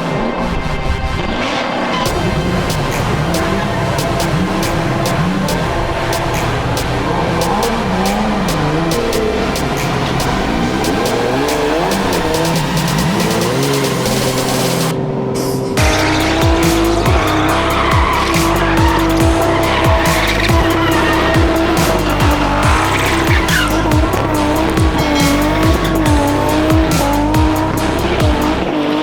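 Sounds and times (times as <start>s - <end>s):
car engine at full revs: 0.0s - 29.0s
tyres squealing: 2.0s - 14.9s, 15.6s - 29.0s
music with booming kicks: 15.8s - 28.7s.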